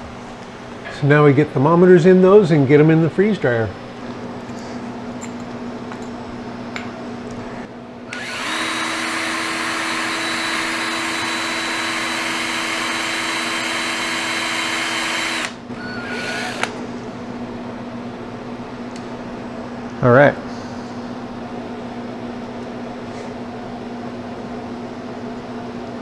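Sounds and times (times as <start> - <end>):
machine hissing and whining: 8.1 - 16.8.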